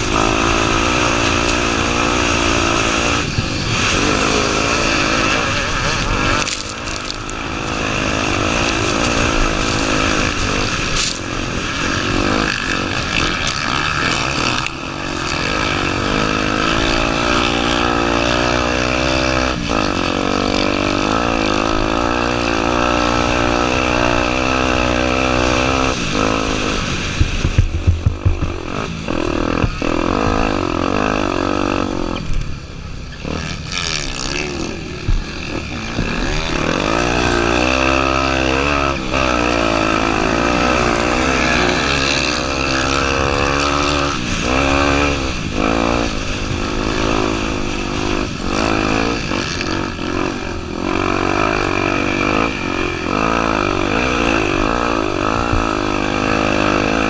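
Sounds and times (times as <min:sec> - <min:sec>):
dirt bike engine: 0:00.0 - 0:57.0
wind noise: 0:00.0 - 0:57.0
knocks and thumps: 0:27.2 - 0:28.7.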